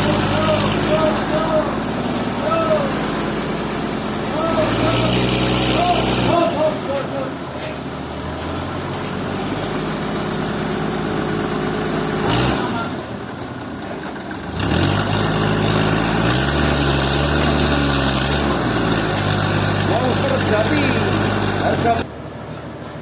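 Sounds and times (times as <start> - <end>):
engine running: 0.0 - 23.0.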